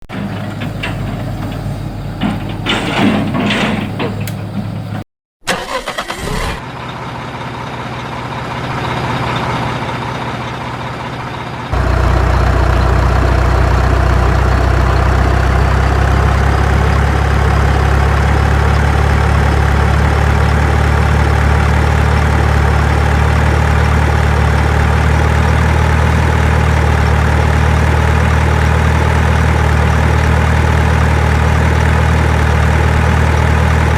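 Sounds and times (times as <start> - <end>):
dump truck engine running: 0.0 - 33.9
knocks and clatter: 0.1 - 5.0.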